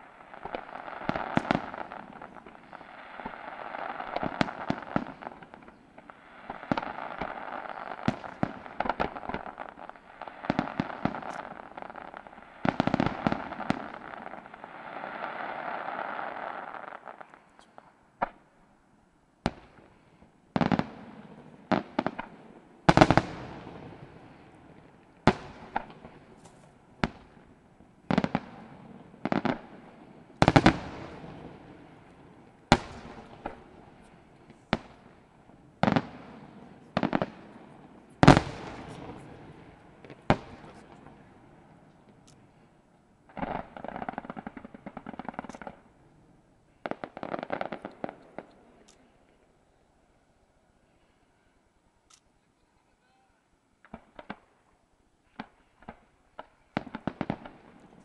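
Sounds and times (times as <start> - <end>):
crackling firework bursts: 0.0 - 18.6, 19.4 - 49.8, 53.8 - 58.0
loud firework bangs: 20.6 - 27.4, 28.0 - 35.2, 35.8 - 41.4.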